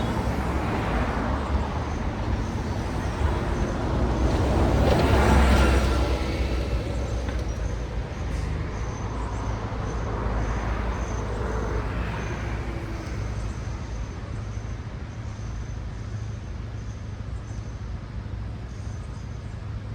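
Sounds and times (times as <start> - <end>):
vehicle passing close: 0.0 - 13.6
traffic rumble: 0.0 - 19.9.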